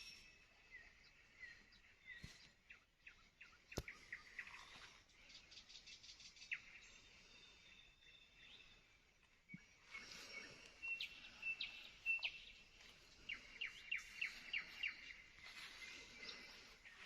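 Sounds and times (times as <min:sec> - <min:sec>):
birds singing: 0:00.0 - 0:17.0.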